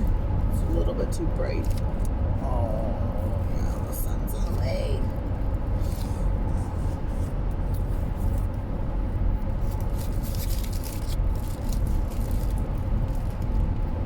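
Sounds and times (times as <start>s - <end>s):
car rumble inside cabin: 0.0s - 14.0s
rustling and crackling: 9.6s - 13.9s.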